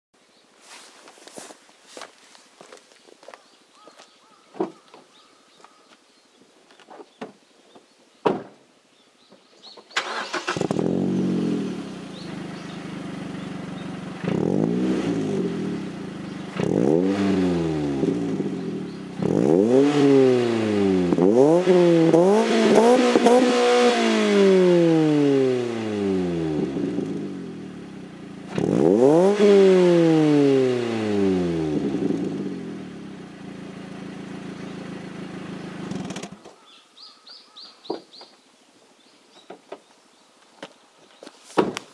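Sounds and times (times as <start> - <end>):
car engine idling and revving: 10.1 - 36.4.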